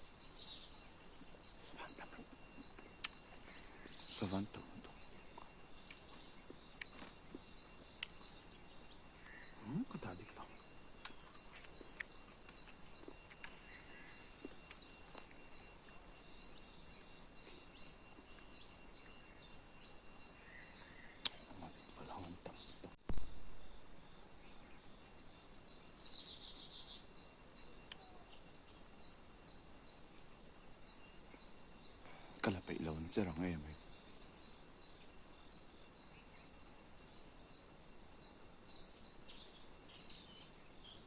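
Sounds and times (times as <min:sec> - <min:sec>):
low thump: 0:23.0 - 0:23.6.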